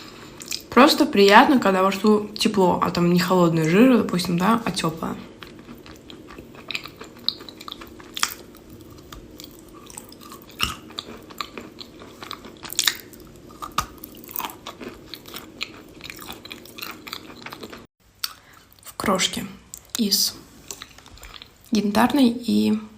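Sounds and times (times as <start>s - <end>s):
steady low hum: 0.0s - 22.9s
person chewing crunchy food: 5.2s - 18.9s, 20.6s - 21.7s.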